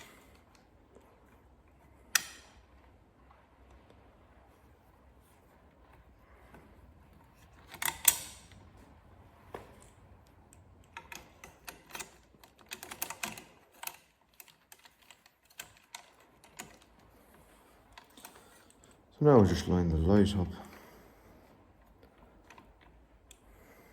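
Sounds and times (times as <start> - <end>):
metal parts clicking and clinking: 7.4 - 8.6, 10.8 - 16.9.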